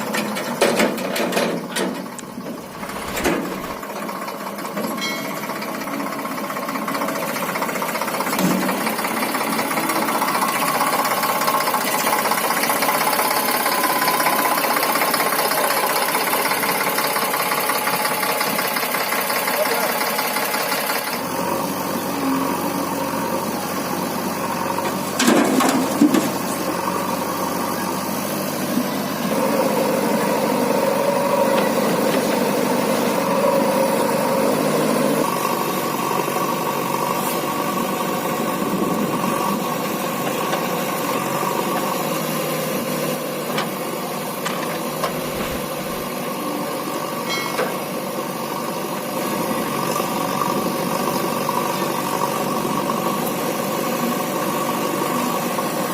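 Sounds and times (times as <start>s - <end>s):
heavy diesel engine running: 0.0s - 55.9s
engine knock: 2.6s - 21.3s.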